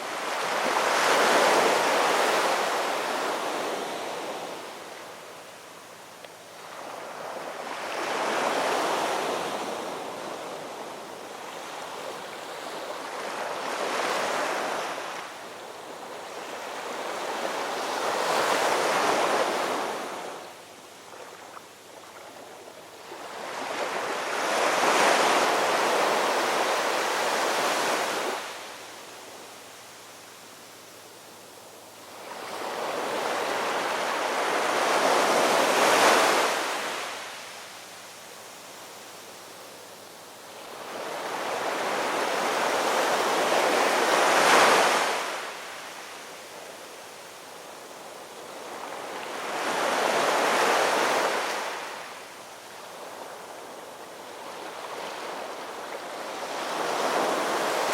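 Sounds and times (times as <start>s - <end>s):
ocean waves breaking on shore: 0.0s - 30.2s, 32.0s - 38.0s, 40.4s - 57.9s.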